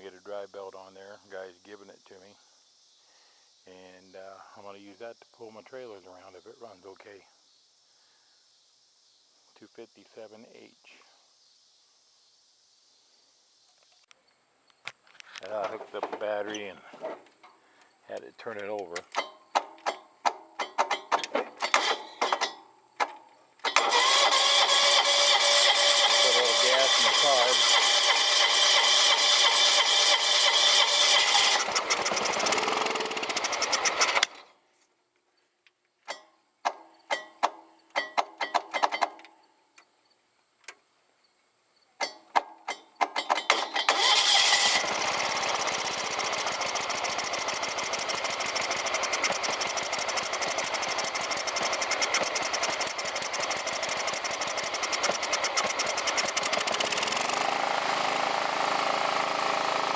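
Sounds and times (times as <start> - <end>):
scattered clicks and knocks: 18.6 - 23.8, 36.0 - 39.3, 42.0 - 44.0, 45.5 - 57.2
tractor engine running: 23.7 - 34.4, 43.0 - 59.9.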